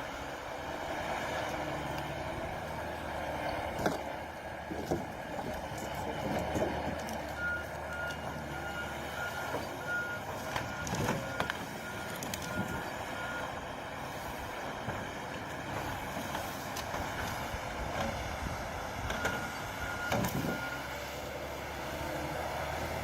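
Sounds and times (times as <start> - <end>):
reversing alarm beeping: 7.4 - 13.6, 19.2 - 21.1.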